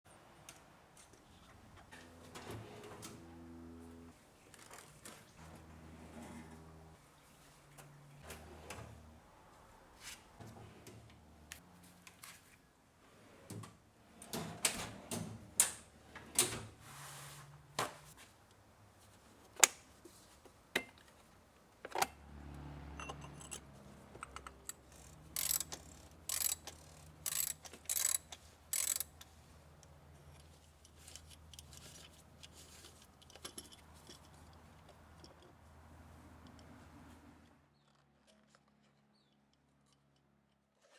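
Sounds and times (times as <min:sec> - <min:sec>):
metal tools clinking and scraping: 0:23.0 - 0:29.1.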